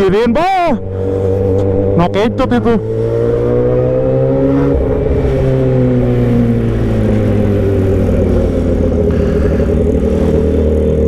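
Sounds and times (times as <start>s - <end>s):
motorcycle engine open exhaust: 0.8s - 11.0s.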